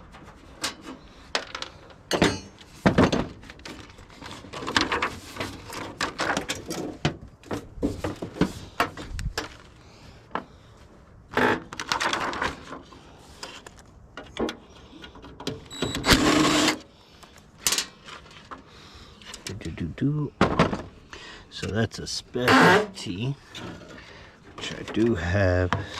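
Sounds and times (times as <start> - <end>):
metal rattling scrape: 16.1 - 16.8.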